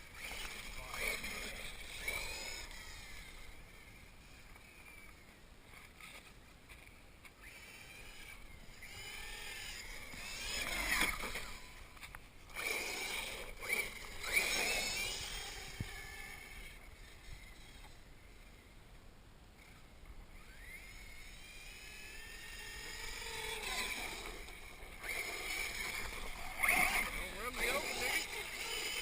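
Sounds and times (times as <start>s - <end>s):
rc truck motor whining: 0.0s - 29.0s.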